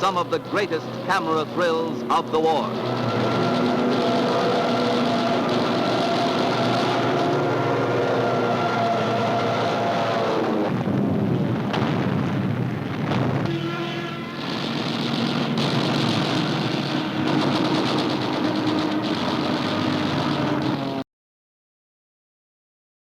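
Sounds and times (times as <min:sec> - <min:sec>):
propeller aircraft engines droning: 0:00.0 - 0:21.0
gunfire: 0:11.6 - 0:20.4.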